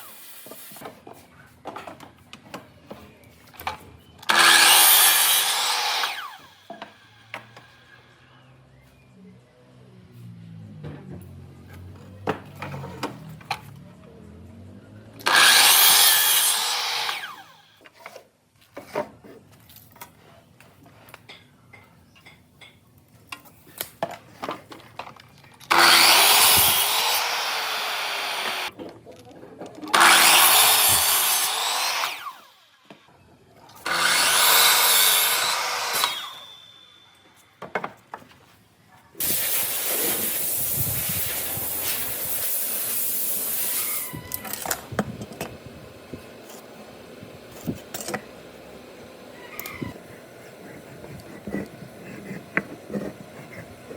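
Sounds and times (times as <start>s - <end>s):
power tool cutting wood: 4.2s - 7.6s, 15.2s - 17.7s, 25.7s - 28.7s, 29.9s - 32.9s, 33.8s - 37.2s, 39.2s - 45.6s.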